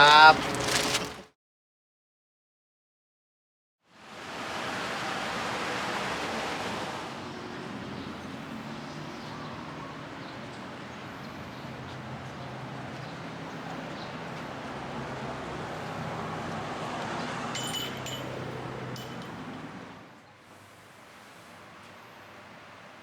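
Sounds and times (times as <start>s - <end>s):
steady outdoor hiss: 17.6s - 23.0s.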